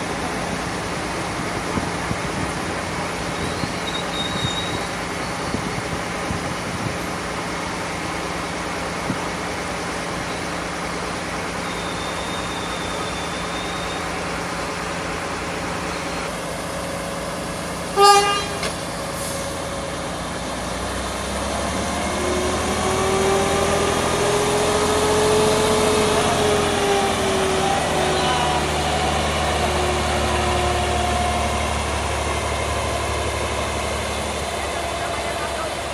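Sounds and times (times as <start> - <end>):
diesel track machines running: 0.0 - 35.9
loud horn toot: 17.9 - 18.8
engine revving up: 20.6 - 35.9.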